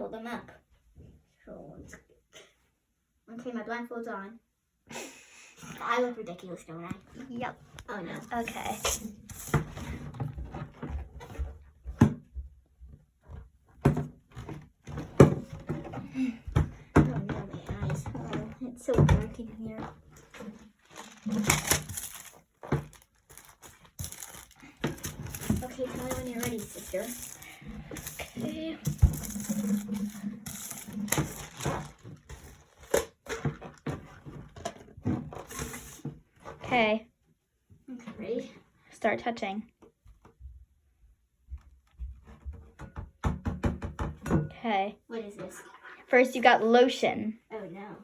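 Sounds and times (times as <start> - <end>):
containers and bottles clattering: 13.3 - 36.0
soft handling noise: 19.2 - 36.6
objects knocking on a table: 42.0 - 44.5.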